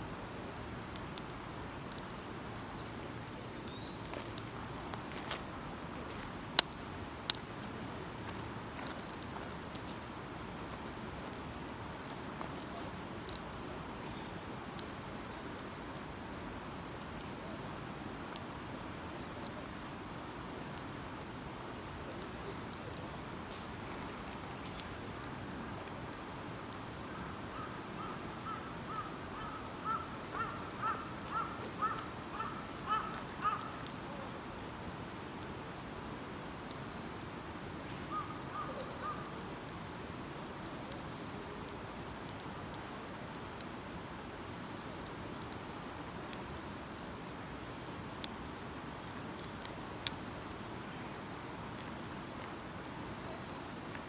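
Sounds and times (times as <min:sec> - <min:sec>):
background hiss: 0:00.0 - 0:54.0
campfire crackling and popping: 0:00.0 - 0:54.0
bird calling short repeated notes: 0:28.0 - 0:33.7.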